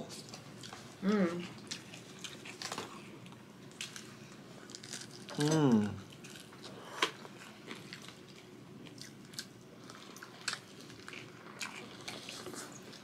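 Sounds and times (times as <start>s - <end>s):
person chewing: 0.0s - 13.0s.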